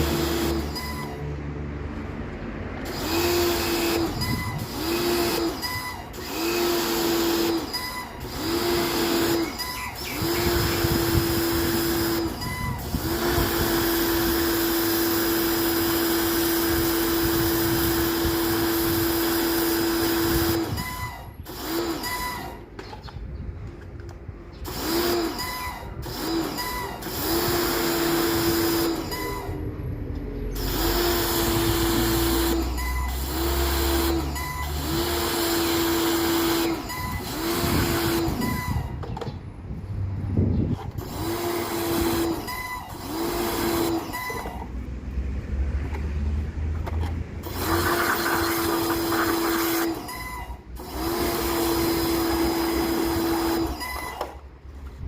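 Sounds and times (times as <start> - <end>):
electric motor humming: 2.9 - 20.8, 24.7 - 29.2, 30.6 - 38.6, 41.0 - 44.5, 47.4 - 50.2.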